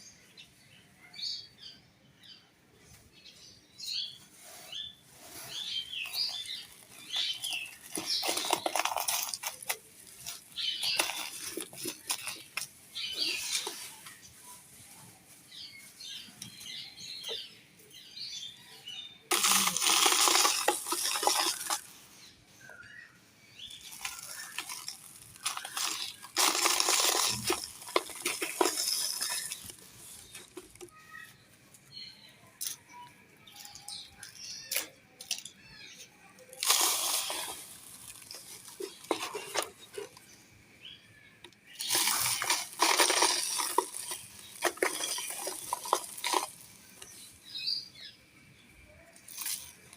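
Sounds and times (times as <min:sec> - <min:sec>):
dry clay crunching by hand: 0:05.2 - 0:14.3, 0:19.3 - 0:22.0, 0:23.6 - 0:31.0, 0:36.4 - 0:40.3, 0:41.5 - 0:47.6
crumbs ticking: 0:05.6 - 0:14.2, 0:19.3 - 0:21.9, 0:23.6 - 0:31.0, 0:36.5 - 0:40.3, 0:41.4 - 0:47.6.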